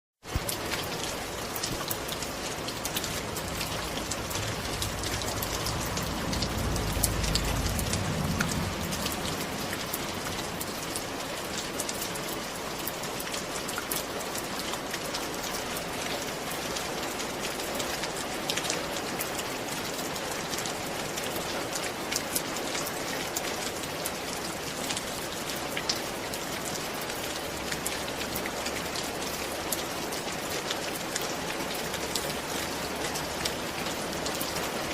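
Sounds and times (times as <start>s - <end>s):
rain falling: 0.2s - 34.9s
low rumble: 2.1s - 11.6s.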